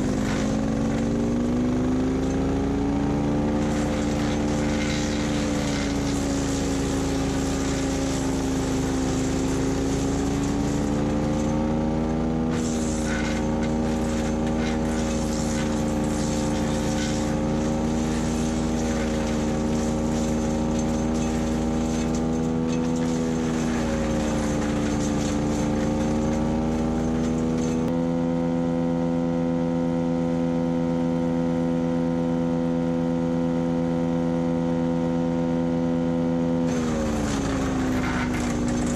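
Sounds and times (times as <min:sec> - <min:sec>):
wood chipper engine running: 0:00.0 - 0:29.6, 0:31.2 - 0:38.9
wood crackling and snapping: 0:03.5 - 0:27.9, 0:36.7 - 0:38.9.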